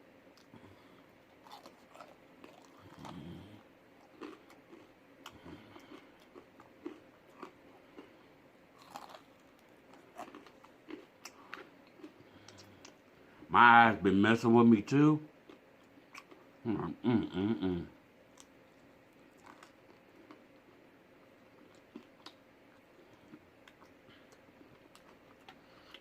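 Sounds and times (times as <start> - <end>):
person chewing food: 0.3 - 13.1, 15.4 - 17.0, 18.3 - 26.0.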